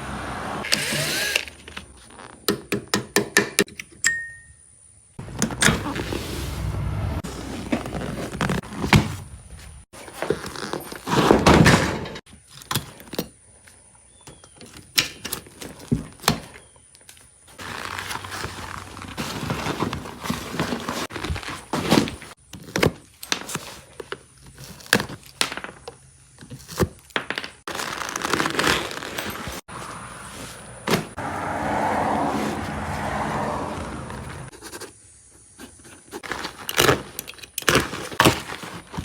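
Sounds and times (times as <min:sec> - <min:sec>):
knocks and clunks of hand work: 0:02.4 - 0:03.9
scraping and rustling: 0:05.2 - 0:11.7, 0:17.5 - 0:22.8, 0:27.6 - 0:39.0.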